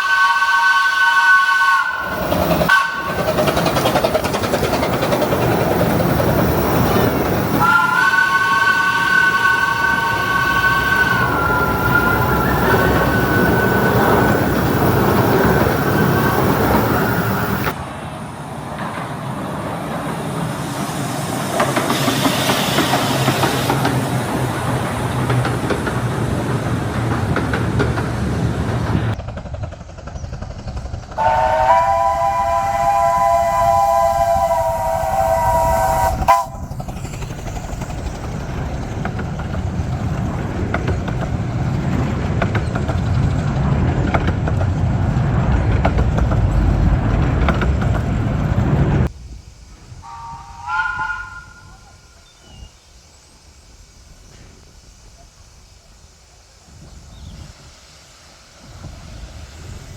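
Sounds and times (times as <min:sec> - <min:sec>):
two-note steam whistle: 0:00.0 - 0:03.4, 0:05.8 - 0:17.7, 0:31.2 - 0:37.6, 0:50.0 - 0:52.7
train running noise: 0:00.0 - 0:59.9.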